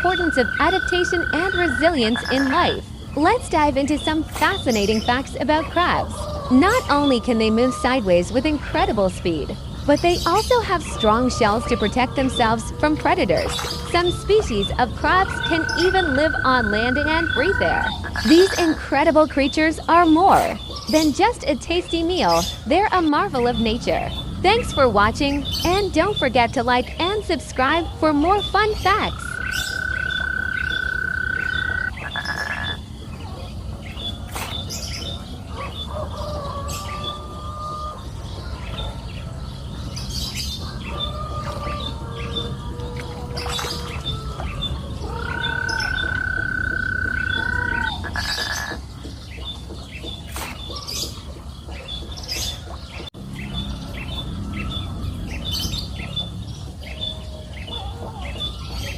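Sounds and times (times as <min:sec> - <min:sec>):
fast chirping chorus: 0:00.0 - 0:36.0, 0:43.4 - 0:52.6
birds calling: 0:00.0 - 0:58.9.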